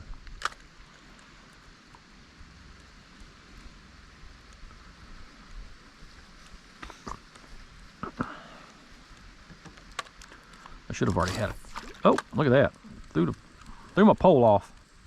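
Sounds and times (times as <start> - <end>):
light wind and water hiss: 0.0 - 15.0
soft ticks: 2.7 - 3.4, 4.4 - 4.8, 9.0 - 10.8, 12.1 - 15.0.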